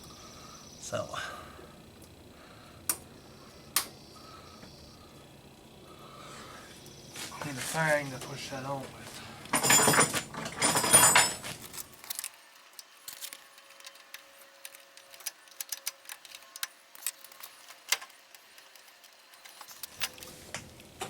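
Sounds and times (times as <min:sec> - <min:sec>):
metal parts scraping clatter: 0:09.5 - 0:12.3.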